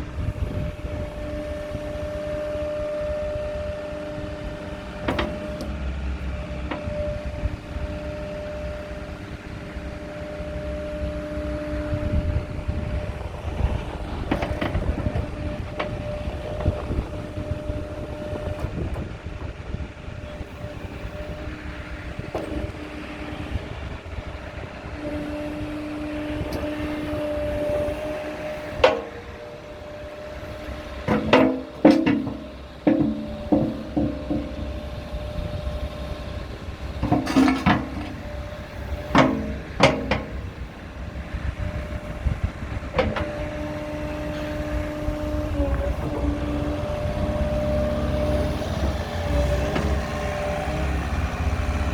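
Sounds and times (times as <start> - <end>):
diesel engine rumble: 0.0 - 51.9
sharp metallic knocks: 31.1 - 34.8.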